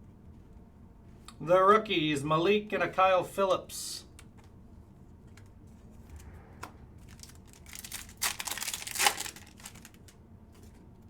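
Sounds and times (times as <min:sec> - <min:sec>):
plastic wrappers crinkling: 0:07.0 - 0:10.7.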